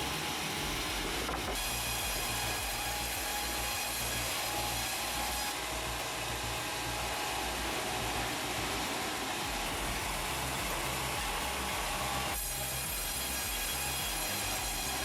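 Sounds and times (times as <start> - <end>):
low pulsing rumble: 0.0 - 15.0
wood-processing machinery running: 0.0 - 15.0.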